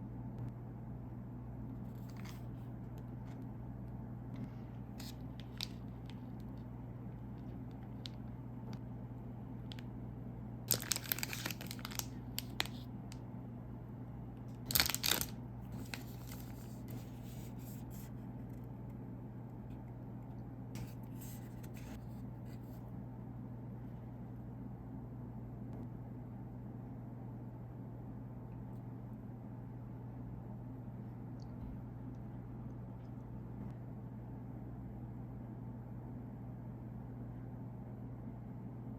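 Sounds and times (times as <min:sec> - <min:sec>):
steady low hum: 0:00.0 - 0:38.9
snack wrapper tearing and crinkling: 0:10.7 - 0:12.9, 0:14.6 - 0:16.8.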